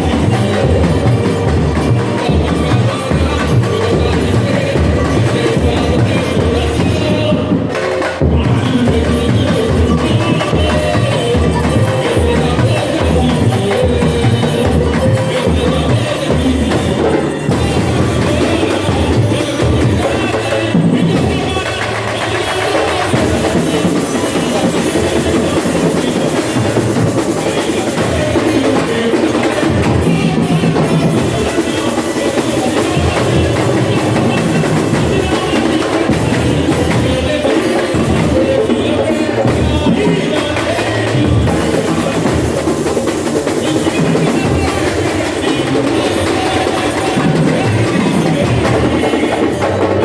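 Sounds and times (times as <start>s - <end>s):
high clicking percussion: 0.0s - 50.0s.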